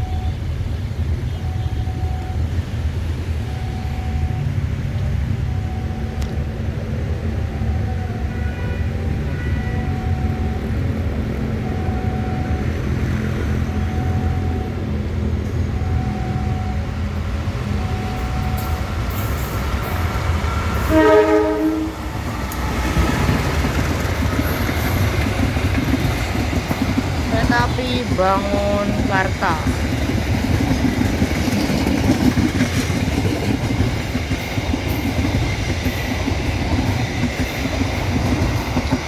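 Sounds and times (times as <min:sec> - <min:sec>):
diesel locomotive rumbling: 0:00.0 - 0:39.0
locomotive horn: 0:08.1 - 0:10.5, 0:20.7 - 0:22.2.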